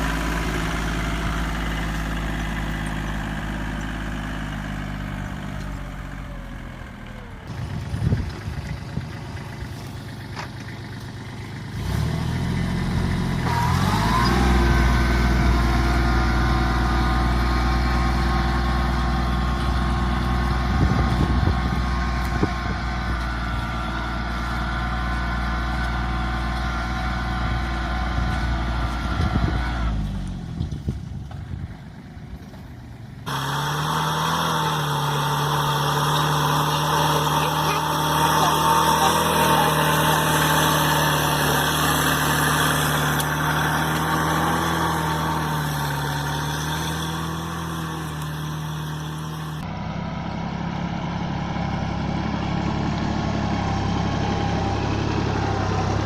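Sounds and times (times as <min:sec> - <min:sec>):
mini-tractor engine running: 0:00.0 - 0:56.0
small engine high pitch: 0:11.6 - 0:30.0, 0:33.3 - 0:56.0.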